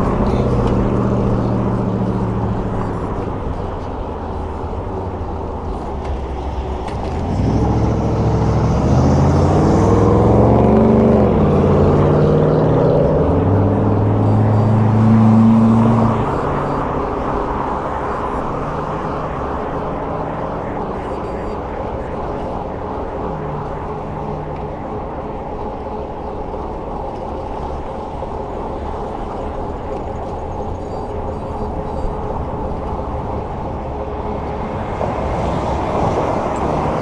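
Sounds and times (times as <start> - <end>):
wind and road noise: 0.0 - 37.0.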